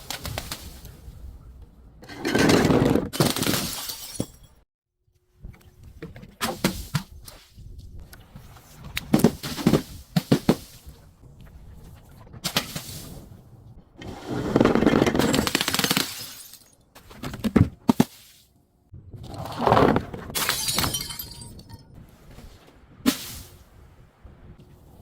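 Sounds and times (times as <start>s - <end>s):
glass bottles crunching and grinding: 2.1s - 4.6s, 14.9s - 16.8s, 20.3s - 21.8s
sharp glass cracks: 15.3s - 16.8s.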